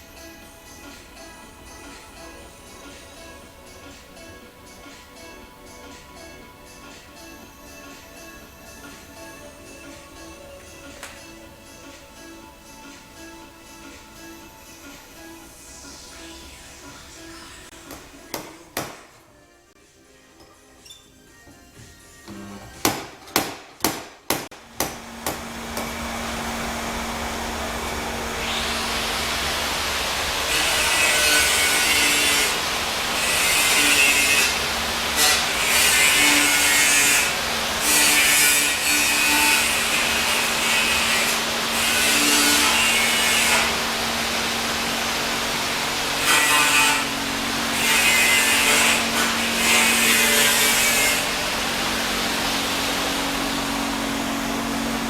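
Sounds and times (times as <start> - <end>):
power tool grinding metal: 25.1 - 55.0.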